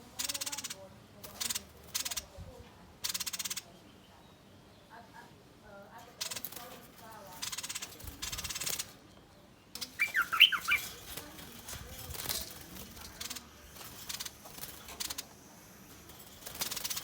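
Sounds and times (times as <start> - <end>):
bird sharp chirps: 9.8 - 11.2
bird harsh rasping calls: 9.8 - 17.0.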